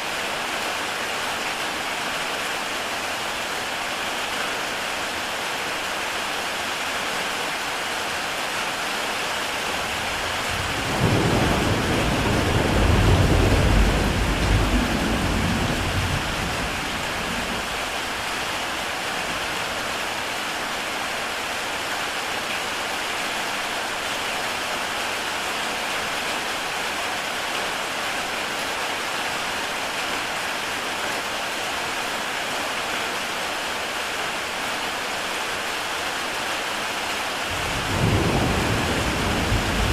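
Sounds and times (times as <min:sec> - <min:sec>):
heavy rain on a tile roof: 0:00.0 - 0:39.9
thunder rumbling: 0:09.8 - 0:18.0, 0:37.5 - 0:39.9.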